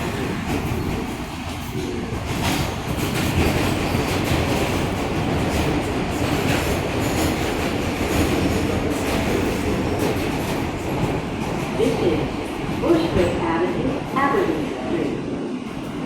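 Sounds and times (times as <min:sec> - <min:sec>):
subway train rumble: 0:00.0 - 0:16.0.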